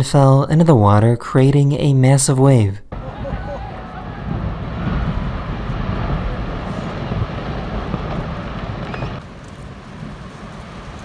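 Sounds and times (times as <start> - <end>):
glacier ice collapsing into sea: 3.0 - 11.0.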